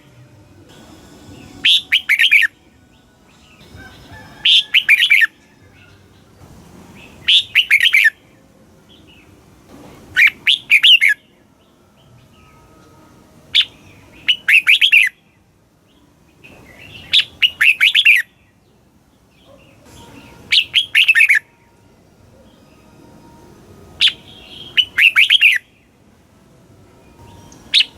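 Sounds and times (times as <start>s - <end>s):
bird singing warbling phrases: 1.4s - 6.3s, 7.0s - 8.3s, 10.2s - 12.6s, 13.5s - 18.6s, 19.2s - 21.5s, 24.0s - 26.0s.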